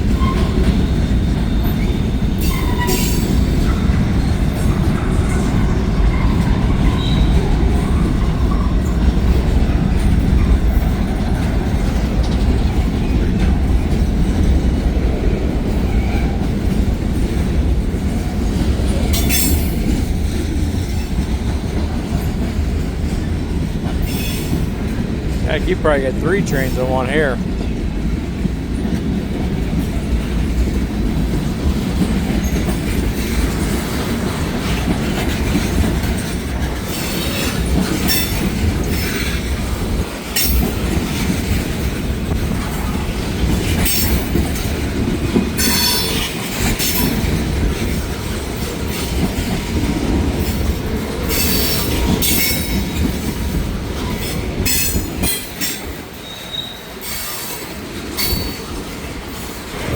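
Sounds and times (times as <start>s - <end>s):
freight train wheels rumbling on rails: 0.0s - 59.9s
wheel squeals and clanks: 0.1s - 3.9s, 6.2s - 7.5s, 54.7s - 57.6s.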